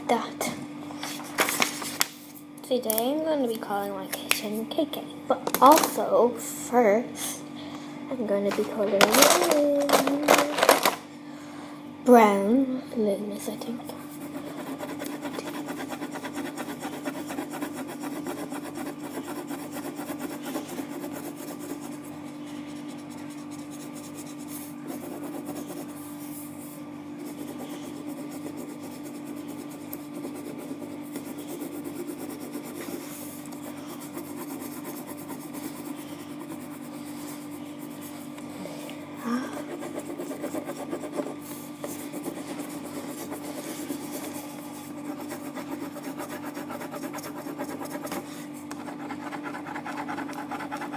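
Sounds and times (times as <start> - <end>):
steady low hum: 0.0 - 50.9
pencil scratching on paper: 13.9 - 38.5, 39.4 - 50.9.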